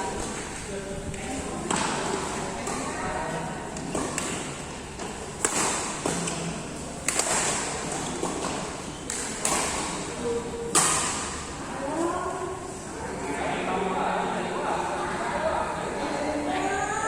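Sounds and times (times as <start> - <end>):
rackets hitting shuttlecock: 3.8 - 10.1, 10.7 - 11.4.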